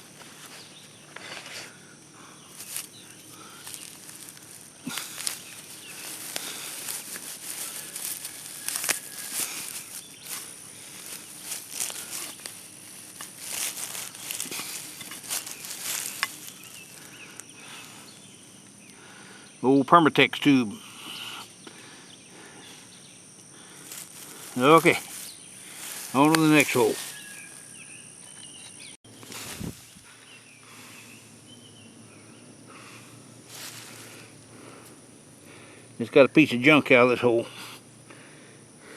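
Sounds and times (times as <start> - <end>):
high insect drone: 0.0 - 38.9
digging in soil: 2.5 - 18.2, 23.6 - 27.6, 29.1 - 30.1
bird chirps: 25.2 - 29.3.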